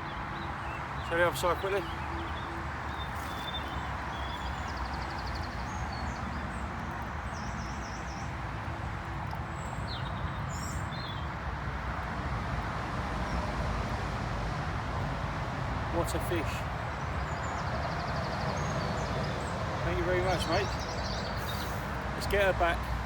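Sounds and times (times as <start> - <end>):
outdoor background noise: 0.0 - 23.0.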